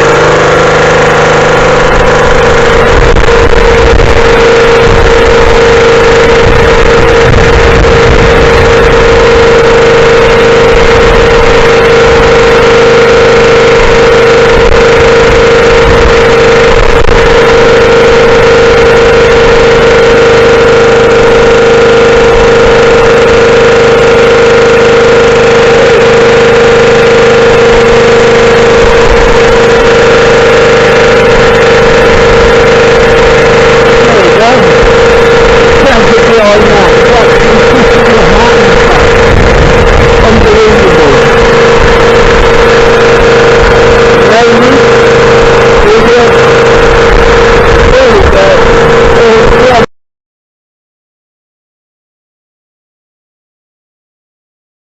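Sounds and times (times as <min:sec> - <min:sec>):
pressure washer engine running: 0:00.0 - 0:49.9.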